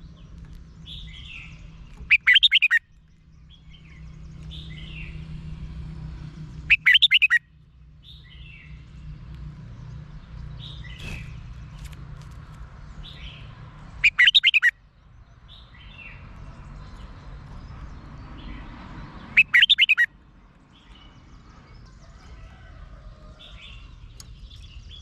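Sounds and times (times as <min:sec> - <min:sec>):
bulbul singing: 0:00.0 - 0:05.3, 0:06.5 - 0:08.8, 0:12.9 - 0:18.6, 0:19.2 - 0:20.2.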